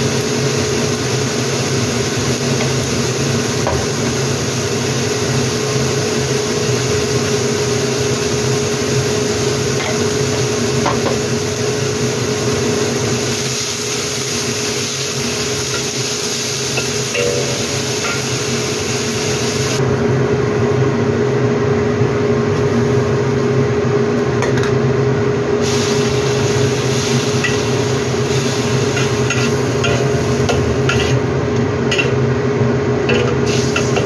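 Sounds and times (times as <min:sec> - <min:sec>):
food sizzling in a wok: 0:00.0 - 0:21.3, 0:22.4 - 0:23.6, 0:25.2 - 0:34.0
utensils clinking against pan: 0:16.7 - 0:18.4, 0:28.9 - 0:31.2, 0:31.9 - 0:32.2.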